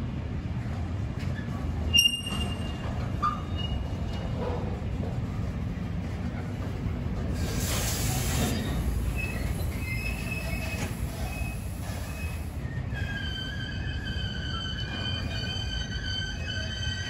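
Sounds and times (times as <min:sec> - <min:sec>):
freight train wheels rumbling: 0:00.0 - 0:17.0
rush of hiss: 0:07.4 - 0:09.8
wheels squealing: 0:08.4 - 0:16.9.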